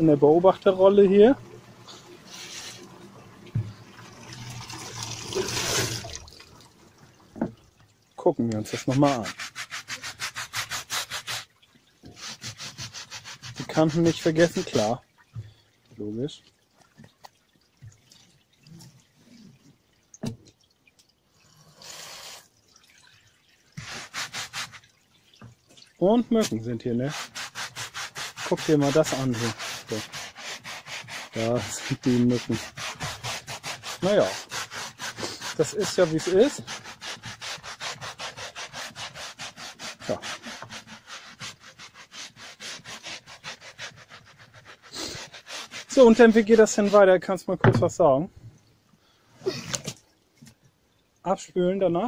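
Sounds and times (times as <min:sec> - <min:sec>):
short wet rush of water: 0:00.0 - 0:07.2, 0:21.8 - 0:25.0
water dripping: 0:00.0 - 0:09.4, 0:11.2 - 0:12.5, 0:14.2 - 0:27.0
brush scrubbing a rug: 0:02.3 - 0:02.9, 0:08.6 - 0:11.5, 0:12.2 - 0:15.0, 0:23.8 - 0:24.9, 0:26.4 - 0:47.1.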